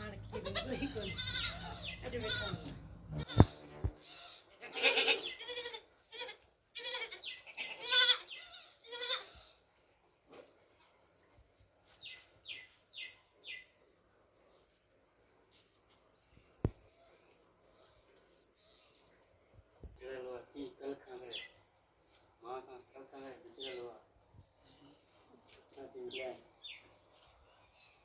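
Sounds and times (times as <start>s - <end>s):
baby goats bleating: 0.0s - 9.5s.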